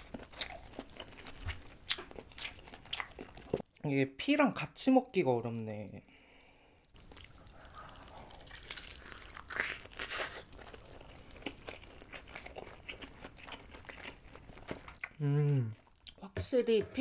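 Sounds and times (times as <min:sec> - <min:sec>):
chewing with wet mouth clicks: 0:00.0 - 0:03.9, 0:06.9 - 0:16.2
biting into dumpling: 0:07.0 - 0:16.2.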